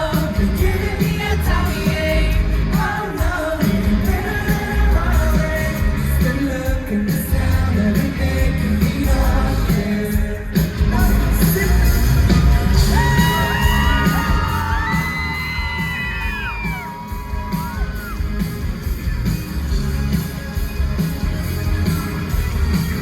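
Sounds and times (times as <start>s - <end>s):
rock band playing loudly: 0.0s - 23.0s
crowd yelling: 12.3s - 18.6s.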